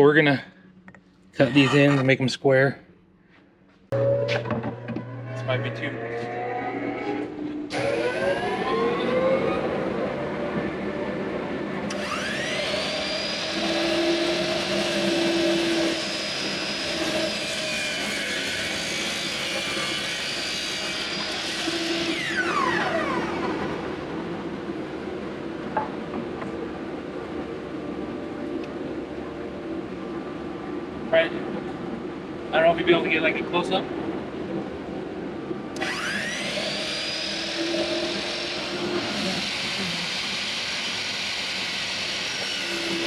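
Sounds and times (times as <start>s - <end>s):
steady machine whir: 3.9s - 43.0s
miter saw motor whine: 4.0s - 10.9s, 11.9s - 24.2s, 35.8s - 43.0s.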